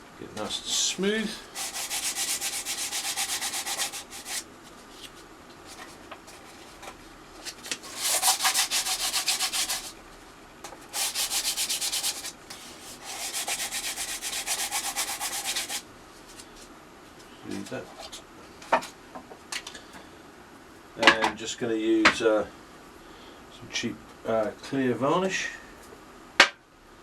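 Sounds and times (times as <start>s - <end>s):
sandpaper rubbing on wood: 1.4s - 4.4s, 7.8s - 10.0s, 10.9s - 15.8s.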